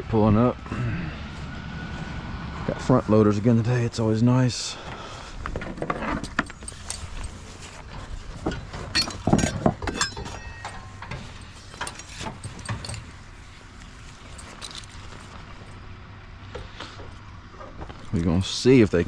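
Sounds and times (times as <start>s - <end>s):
metallic clicks and rattles: 5.6s - 13.5s, 14.2s - 15.2s.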